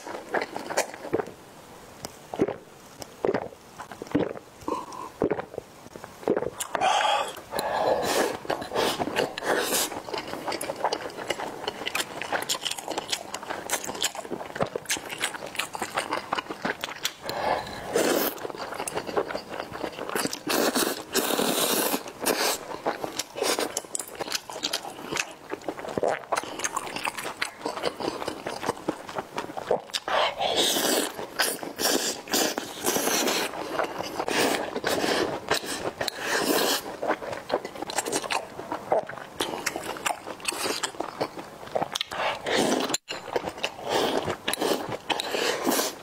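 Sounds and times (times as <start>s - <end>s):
wet chewing and biting: 30.7s - 46.0s.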